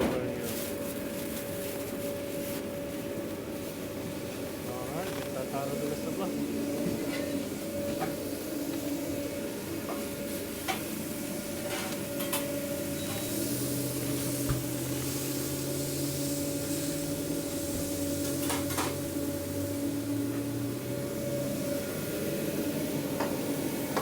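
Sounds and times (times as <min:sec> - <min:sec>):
kitchen machine hum: 0:00.0 - 0:24.0
food sizzling on hot surface: 0:12.8 - 0:22.9.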